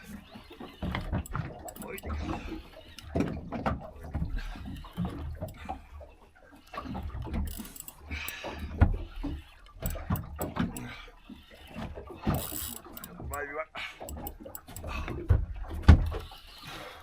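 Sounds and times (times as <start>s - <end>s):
fishing gear knocking and rustling: 0.8s - 5.7s, 7.0s - 11.0s, 11.8s - 16.4s.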